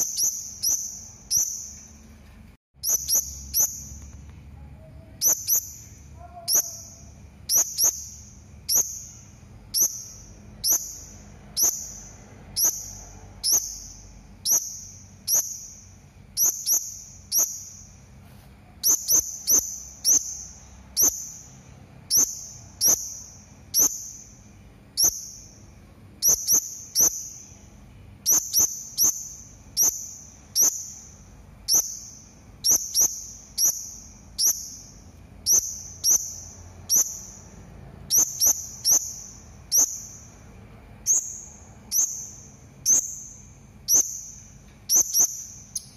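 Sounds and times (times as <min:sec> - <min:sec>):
parrot shrill call notes: 0:02.8 - 0:04.0, 0:05.0 - 0:12.0.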